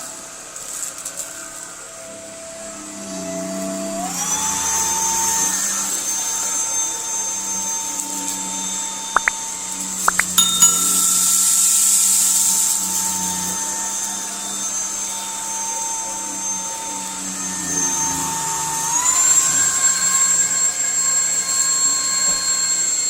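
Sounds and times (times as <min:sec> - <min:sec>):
vacuum cleaner motor whine: 0:00.0 - 0:08.5, 0:13.2 - 0:23.0
clicks: 0:10.1 - 0:11.8.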